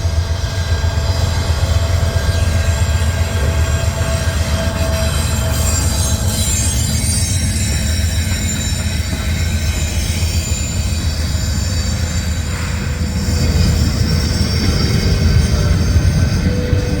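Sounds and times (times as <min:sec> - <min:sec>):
freight train wheels rumbling: 0:00.0 - 0:17.0
high-pitched wheel squeal: 0:00.1 - 0:17.0.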